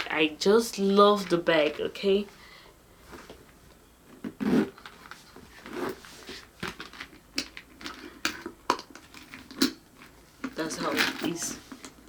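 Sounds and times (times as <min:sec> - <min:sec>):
handbag rustling: 0:04.1 - 0:12.0.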